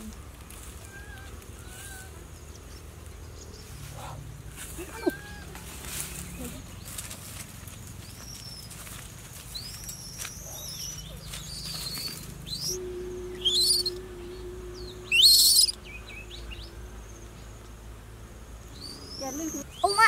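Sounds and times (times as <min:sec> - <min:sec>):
birds whistling: 0:08.0 - 0:17.2, 0:18.7 - 0:20.0
loud bird chirping: 0:09.5 - 0:12.8, 0:13.4 - 0:17.8, 0:18.7 - 0:20.0.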